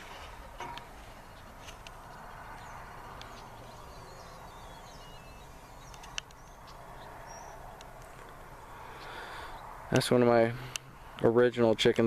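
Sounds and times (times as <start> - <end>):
small bird singing: 1.2 - 9.8
light clicks: 5.8 - 6.8.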